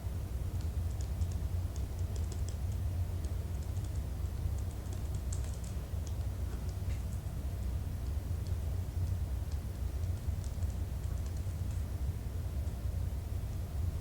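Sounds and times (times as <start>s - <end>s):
steady low hum: 0.0s - 14.0s
typing on computer keyboard: 0.5s - 7.2s, 8.0s - 11.8s.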